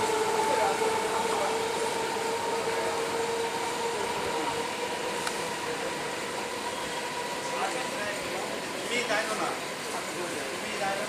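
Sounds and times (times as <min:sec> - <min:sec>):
electric train whine: 0:00.0 - 0:09.8.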